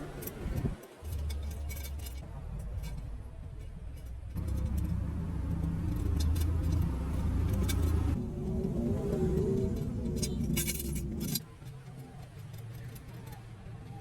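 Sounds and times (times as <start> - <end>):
motorcycle engine running: 4.4 - 11.4.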